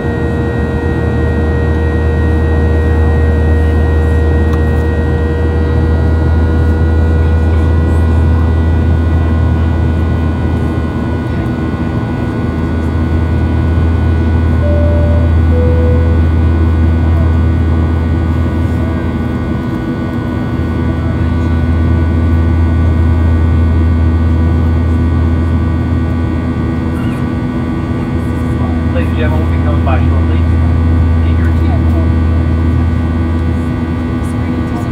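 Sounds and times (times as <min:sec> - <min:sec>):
airplane cabin drone: 0:00.0 - 0:34.9
two short cabin tones: 0:14.6 - 0:16.6.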